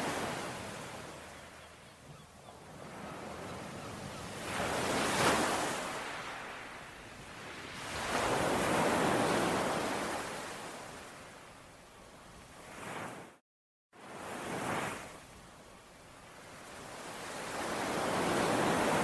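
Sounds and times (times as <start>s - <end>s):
ocean waves breaking: 0.0s - 1.8s, 2.7s - 11.2s, 16.8s - 19.0s.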